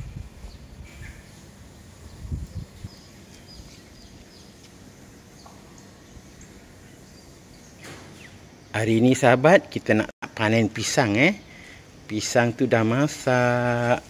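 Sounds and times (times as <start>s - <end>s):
small birds chirping: 0.0s - 9.4s
faint outdoor background noise: 0.0s - 14.0s.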